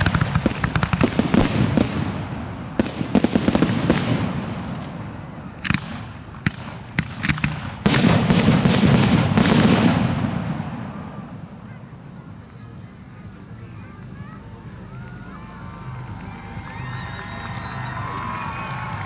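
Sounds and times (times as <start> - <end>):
fireworks bangs and crackling: 0.0 - 13.5.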